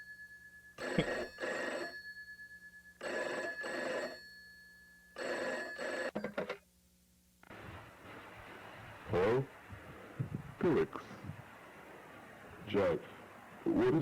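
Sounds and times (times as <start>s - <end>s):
telephone ringing: 0.0s - 6.6s.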